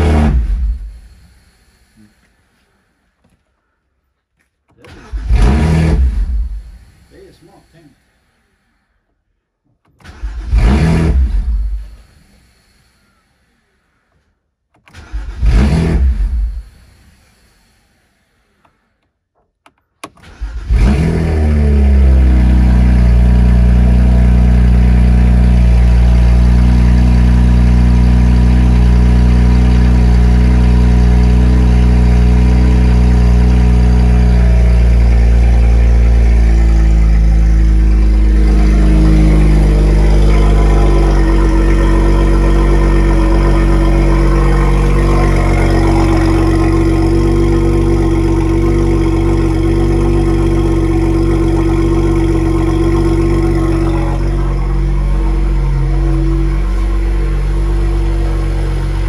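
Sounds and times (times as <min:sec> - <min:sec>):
car engine idling: 0:15.0 - 0:59.0.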